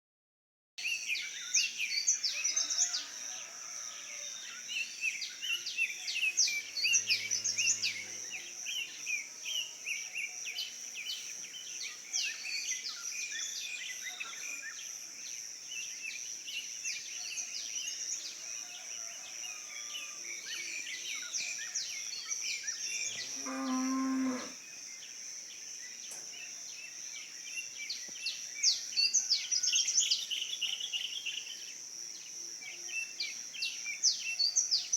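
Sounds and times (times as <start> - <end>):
high insect drone: 1.1 - 34.9
cow mooing: 23.1 - 24.6.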